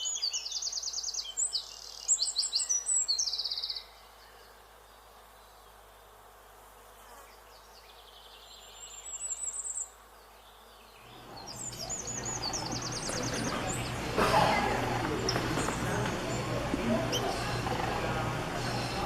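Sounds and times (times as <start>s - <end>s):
songbird trilling: 11.0s - 19.0s
steady low hum: 11.0s - 19.0s.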